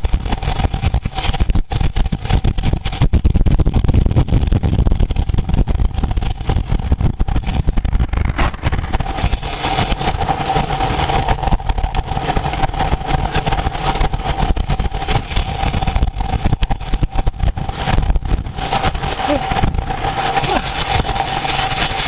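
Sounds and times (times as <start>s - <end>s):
gusty wind: 0.0s - 22.0s
road noise: 6.0s - 22.0s.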